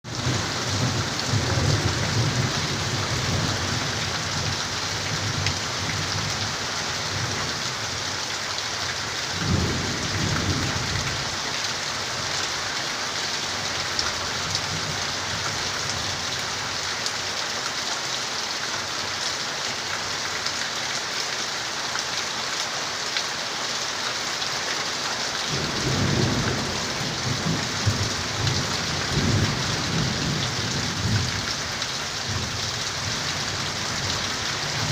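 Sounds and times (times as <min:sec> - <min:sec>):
heavy rain: 0:00.0 - 0:34.9
thunder rumbling: 0:25.6 - 0:31.4.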